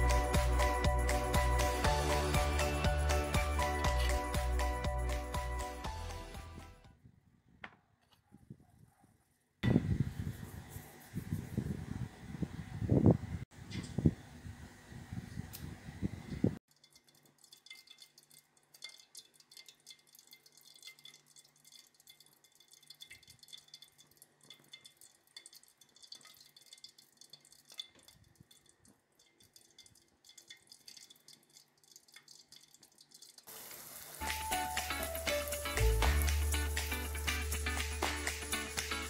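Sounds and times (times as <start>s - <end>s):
batter dripping: 16.7s - 39.0s.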